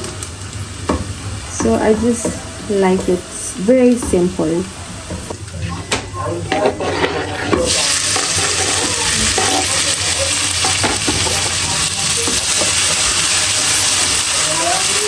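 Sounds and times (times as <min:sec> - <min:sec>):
stirring knocks: 0:00.8 - 0:03.2, 0:03.8 - 0:10.0, 0:10.6 - 0:13.2
food sizzling in hot oil: 0:06.5 - 0:15.0.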